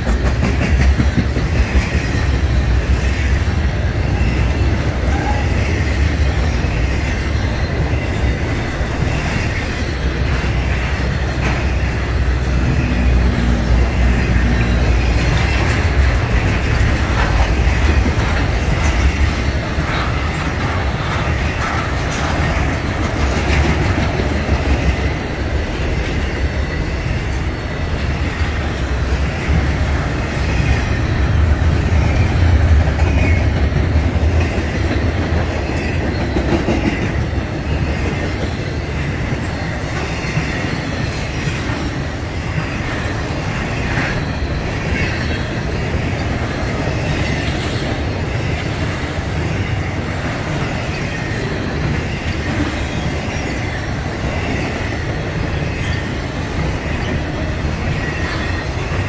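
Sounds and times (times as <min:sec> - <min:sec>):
freight train rumbling past: 0:00.0 - 0:59.0
train wheels clacking: 0:00.0 - 0:59.0.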